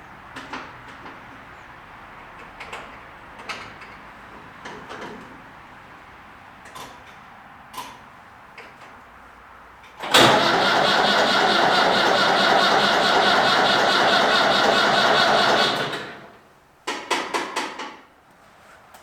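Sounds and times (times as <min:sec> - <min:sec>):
engine clatters: 0:09.9 - 0:16.4
tractor starter cranking engine: 0:10.0 - 0:16.4.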